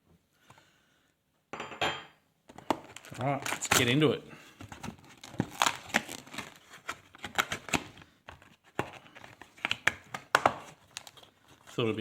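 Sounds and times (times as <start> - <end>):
card packaging tearing and crinkling: 2.6 - 11.9.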